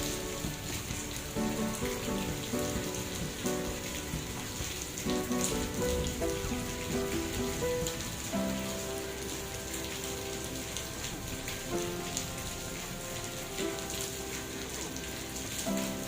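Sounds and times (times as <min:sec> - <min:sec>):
heavy rain falling: 0:00.0 - 0:16.0
slow melody of held notes: 0:00.0 - 0:16.0.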